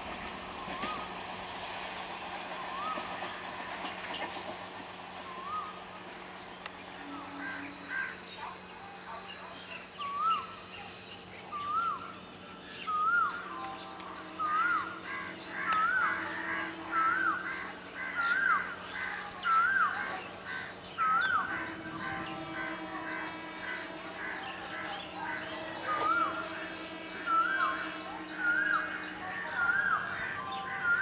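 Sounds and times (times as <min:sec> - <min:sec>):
faint low hum: 0:03.8 - 0:31.0
bird whistling call: 0:05.3 - 0:05.8, 0:12.8 - 0:18.8.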